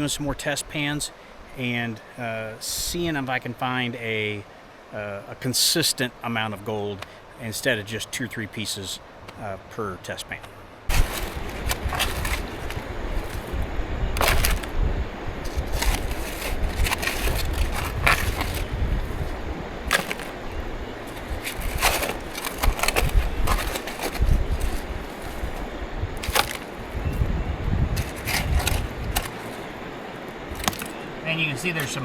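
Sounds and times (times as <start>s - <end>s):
shovel scraping gravel: 10.9s - 13.6s, 14.2s - 14.7s, 15.4s - 25.6s, 26.2s - 27.3s, 28.0s - 29.8s, 30.5s - 31.0s
steady low rumble: 10.9s - 30.6s.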